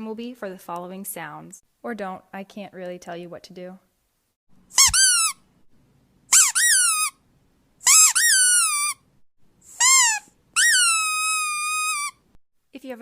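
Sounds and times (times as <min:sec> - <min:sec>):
high-pitched squeaks: 0:04.7 - 0:05.4, 0:06.3 - 0:07.2, 0:07.8 - 0:09.0, 0:09.7 - 0:12.2.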